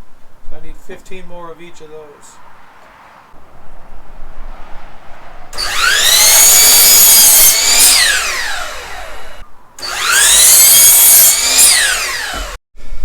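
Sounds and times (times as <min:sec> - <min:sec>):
electric power saw cutting boards: 0:05.5 - 0:12.6.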